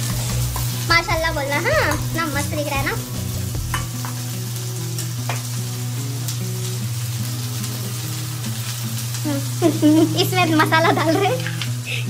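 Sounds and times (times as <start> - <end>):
spices and onion sizzling in oil: 0.0 - 12.0.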